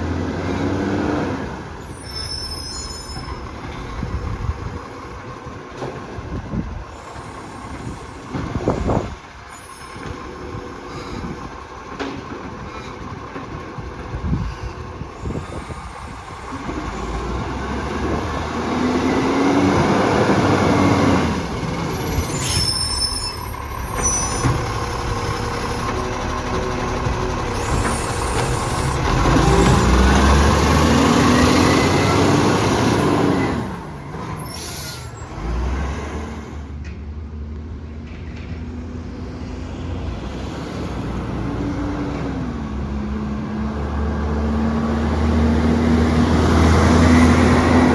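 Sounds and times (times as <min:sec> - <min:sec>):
diesel engine revving: 0:00.0 - 0:02.5, 0:03.4 - 0:36.8, 0:38.8 - 0:47.9
air brake hissing: 0:14.6 - 0:17.3, 0:21.9 - 0:25.0, 0:27.5 - 0:30.0, 0:34.3 - 0:36.7.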